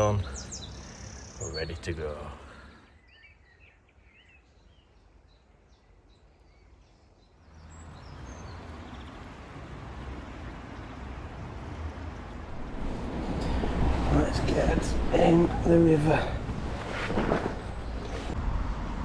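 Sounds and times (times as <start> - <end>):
steady rushing noise: 9.1 - 19.0.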